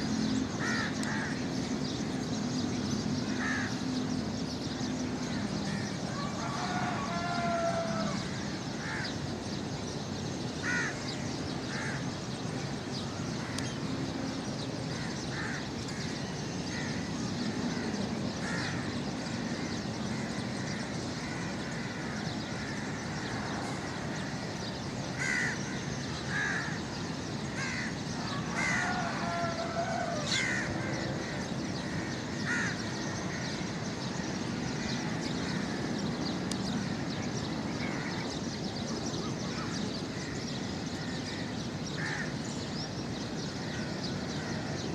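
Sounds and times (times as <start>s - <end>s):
birds calling: 0.0s - 44.9s
steady background rush: 0.0s - 44.9s.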